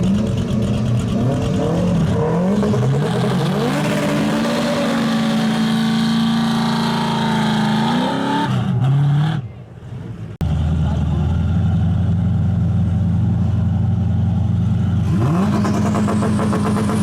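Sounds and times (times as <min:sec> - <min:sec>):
race cars accelerating: 0:00.0 - 0:09.6, 0:15.0 - 0:17.0.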